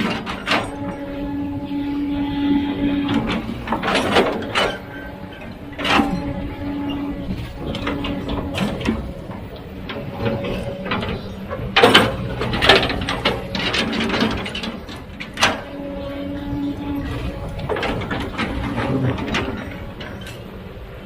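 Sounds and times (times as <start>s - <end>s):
sharp metallic clanks and knocks: 0.0s - 1.5s, 2.9s - 15.9s
engine humming: 0.0s - 21.0s.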